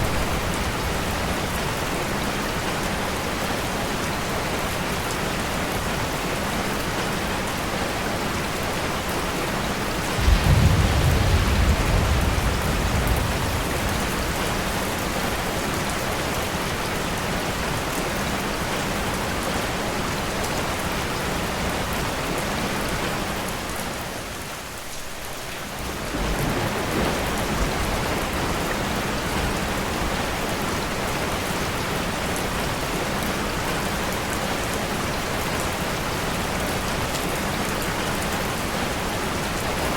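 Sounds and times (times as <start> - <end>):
rain falling: 0.0 - 39.9
thunder rumble: 10.0 - 16.5, 25.8 - 31.7.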